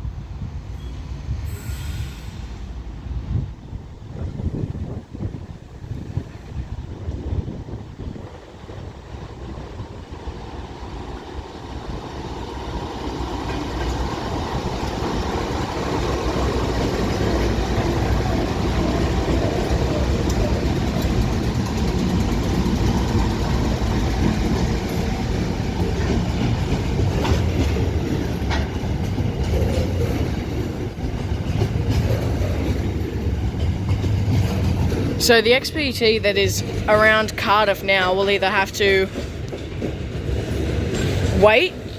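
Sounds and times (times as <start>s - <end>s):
train rumbling past: 0.0s - 41.9s
wheels clicking over rail joints: 9.2s - 35.8s, 36.5s - 41.9s.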